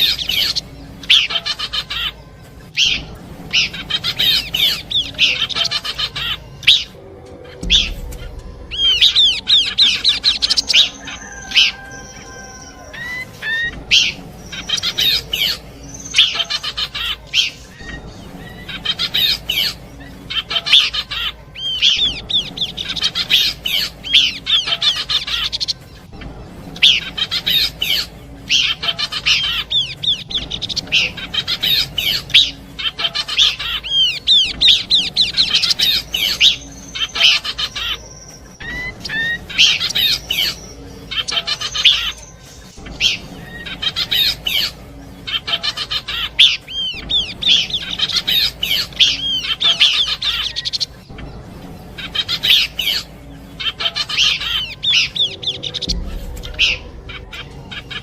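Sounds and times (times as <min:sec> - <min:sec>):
bird singing high slurred notes: 0:00.0 - 0:58.0
bird whistles: 0:07.6 - 0:25.8.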